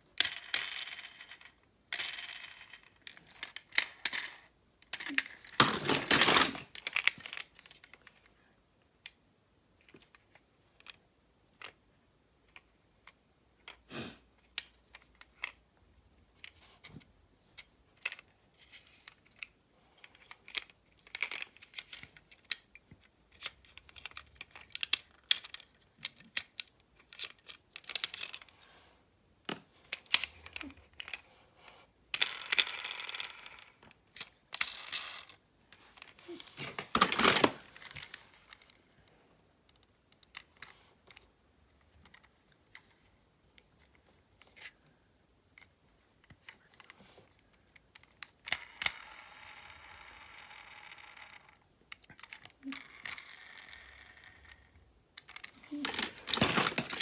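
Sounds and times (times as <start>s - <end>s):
small hard objects clattering: 5.0s - 6.8s, 36.6s - 37.7s, 55.4s - 57.0s.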